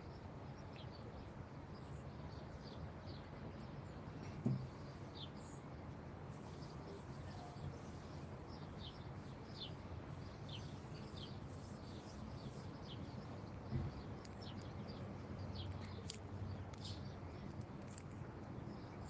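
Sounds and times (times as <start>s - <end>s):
small birds chirping: 0.6s - 19.0s
soft thump: 4.4s - 4.7s.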